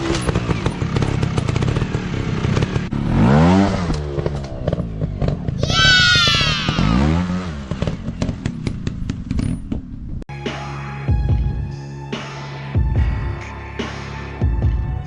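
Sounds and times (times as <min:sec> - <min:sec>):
engine pops and crackles: 0:00.0 - 0:03.0, 0:07.5 - 0:10.2
dirt bike engines revving: 0:00.0 - 0:09.6.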